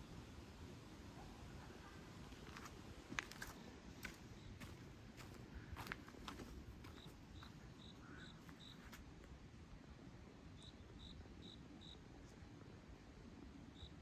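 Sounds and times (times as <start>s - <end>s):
insect chirping: 6.9s - 8.9s, 10.6s - 12.0s, 13.7s - 14.0s.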